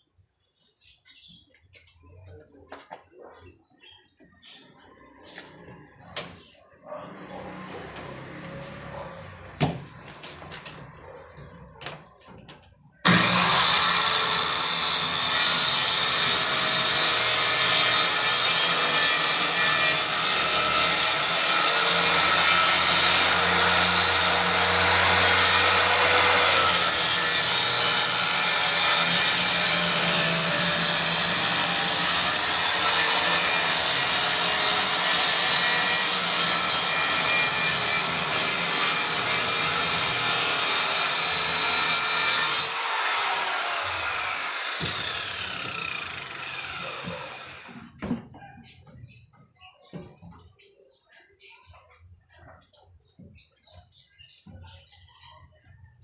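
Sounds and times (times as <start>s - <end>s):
circular saw cutting plywood: 13.0s - 48.0s.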